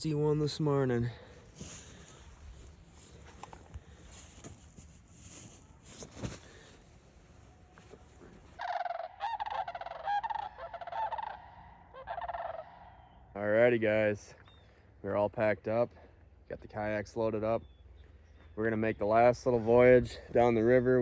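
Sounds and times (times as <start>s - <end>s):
geese honking: 8.6s - 13.1s.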